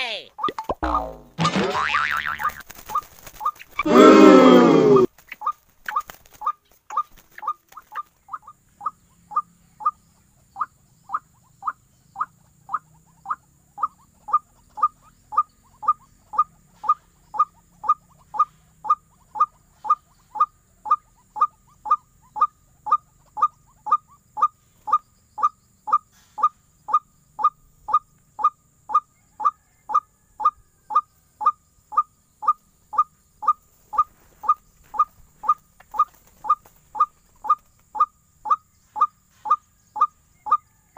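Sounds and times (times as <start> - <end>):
waterhen calling: 20.9 - 40.6.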